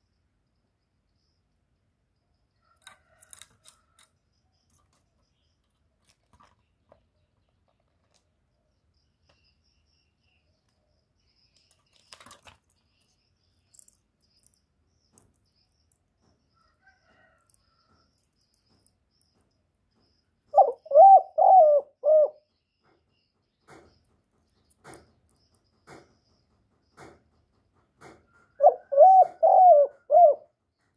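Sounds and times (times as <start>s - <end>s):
dove cooing: 20.5s - 22.5s, 28.6s - 30.5s.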